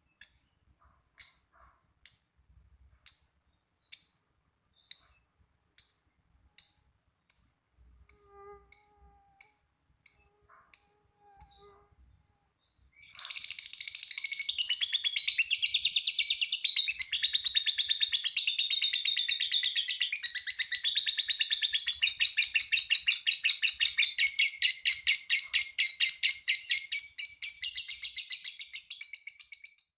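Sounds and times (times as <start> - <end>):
lovebird chattering song: 1.2 - 2.3, 3.1 - 3.3, 3.9 - 4.2, 4.8 - 5.2, 5.8 - 6.0, 6.6 - 7.5, 8.1 - 11.7, 12.7 - 29.9
short bird chirps: 8.1 - 17.6.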